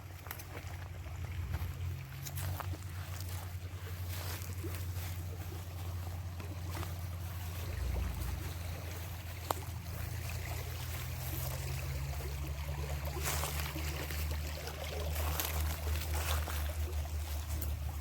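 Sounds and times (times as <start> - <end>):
river water flowing: 0.0 - 18.0.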